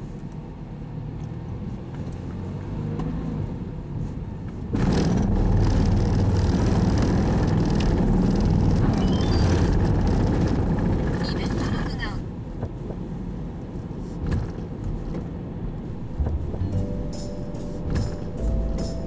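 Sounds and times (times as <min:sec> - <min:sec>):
car driving slowly: 0:00.0 - 0:19.0
ship machinery rumble: 0:15.9 - 0:19.0.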